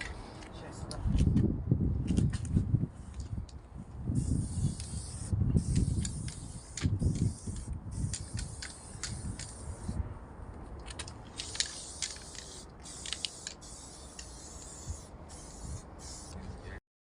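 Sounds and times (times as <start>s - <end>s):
spray-paint can hissing: 4.2s - 10.0s, 11.3s - 16.4s.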